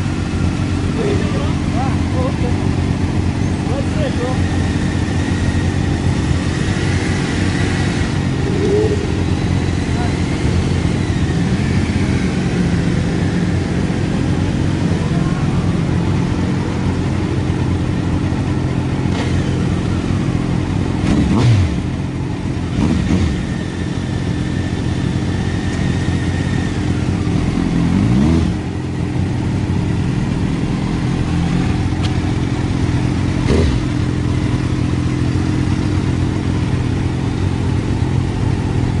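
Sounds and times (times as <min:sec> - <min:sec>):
motorcycle engine running hard: 0:00.0 - 0:39.0.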